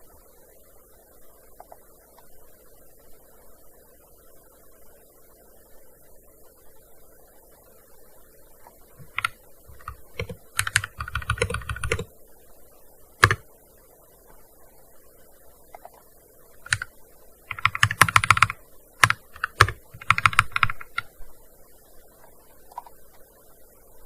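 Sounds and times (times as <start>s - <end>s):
keyboard typing: 9.0s - 12.1s, 13.2s - 13.4s, 16.6s - 16.9s, 17.5s - 21.1s.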